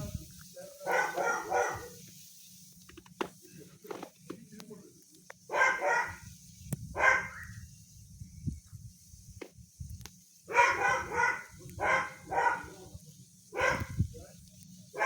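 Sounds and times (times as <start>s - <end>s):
dog barking: 0.8s - 2.0s, 5.5s - 6.2s, 7.0s - 7.4s, 10.5s - 12.8s, 13.5s - 14.0s.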